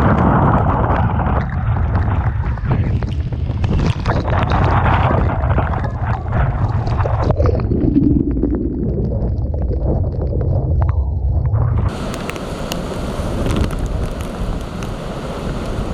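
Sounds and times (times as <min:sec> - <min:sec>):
wind buffeting microphone: 0:00.0 - 0:15.9
waves and spray: 0:11.6 - 0:15.9.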